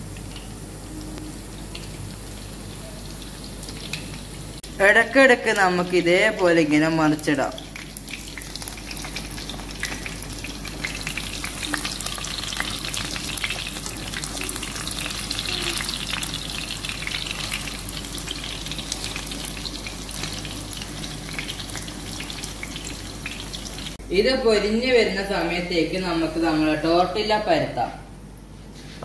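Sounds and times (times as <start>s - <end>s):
chicken sizzling in hot oil: 0.0s - 4.8s, 7.3s - 24.0s.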